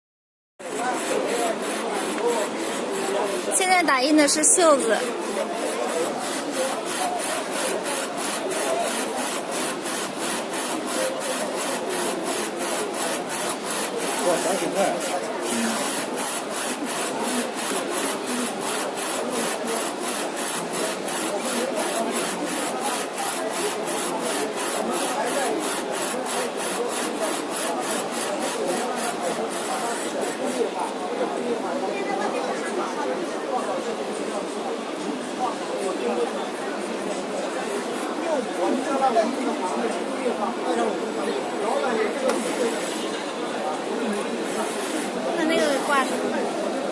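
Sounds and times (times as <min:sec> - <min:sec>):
textile printer rasping: 0:00.6 - 0:31.3, 0:41.6 - 0:46.9
textile printer swishing: 0:44.2 - 0:46.2.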